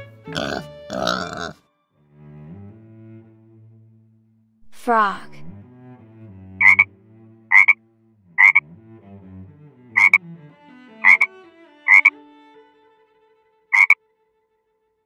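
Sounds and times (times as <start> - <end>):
soft string-like background music: 0.0 - 15.0
frog croaking: 0.3 - 1.6, 6.6 - 6.9, 7.5 - 7.8, 8.4 - 8.6, 10.0 - 10.2, 11.0 - 11.3, 11.9 - 12.1, 13.7 - 14.0.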